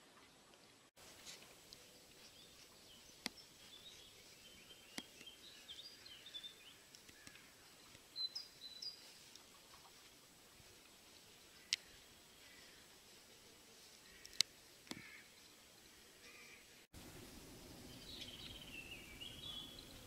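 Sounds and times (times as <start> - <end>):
small birds chirping: 1.2 - 13.2, 14.0 - 20.0
sharp clicks: 14.2 - 15.0.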